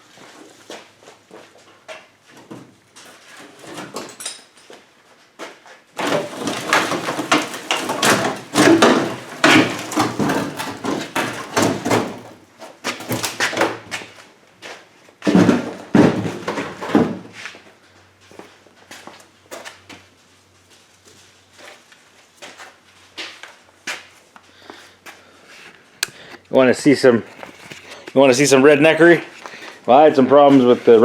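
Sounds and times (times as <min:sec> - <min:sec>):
tools and parts knocking and rattling: 0:01.8 - 0:04.8, 0:06.0 - 0:14.2, 0:15.2 - 0:17.4.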